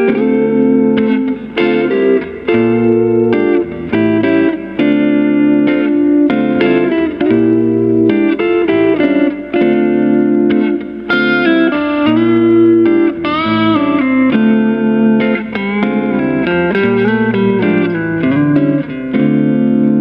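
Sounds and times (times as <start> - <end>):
clean electric guitar: 0.0 - 20.0.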